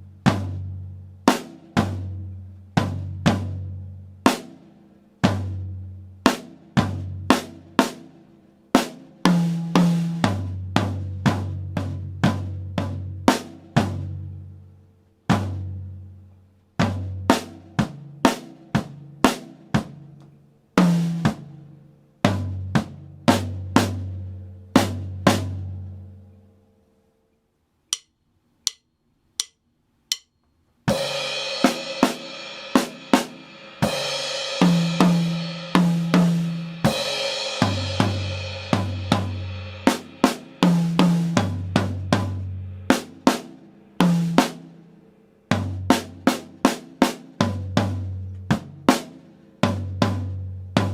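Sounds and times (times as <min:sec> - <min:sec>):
count-in clicks: 0:27.9 - 0:30.6
drum kit playing: 0:29.4 - 0:30.3, 0:30.9 - 0:44.8, 0:45.5 - 0:50.9.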